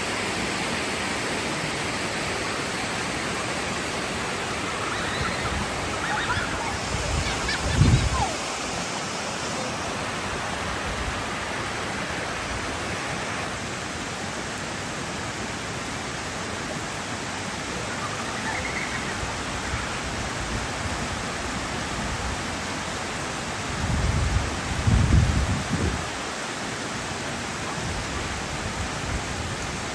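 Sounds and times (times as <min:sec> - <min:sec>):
waterfall roaring: 0:00.0 - 0:29.9.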